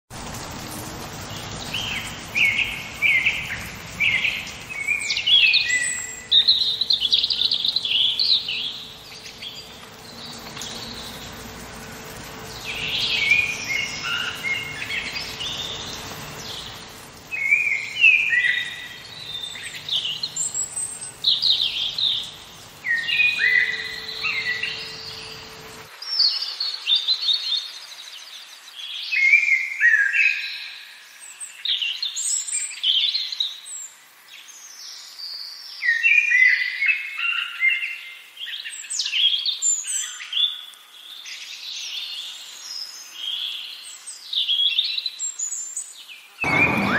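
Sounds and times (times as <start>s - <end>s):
low background noise: 0.1s - 29.8s
birds singing and chirping: 0.2s - 46.9s.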